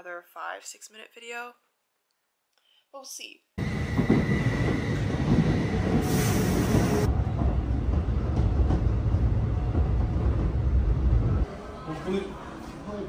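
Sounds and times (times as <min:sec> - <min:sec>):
train rumbling: 0:03.6 - 0:11.6
loud hiss: 0:06.0 - 0:07.1.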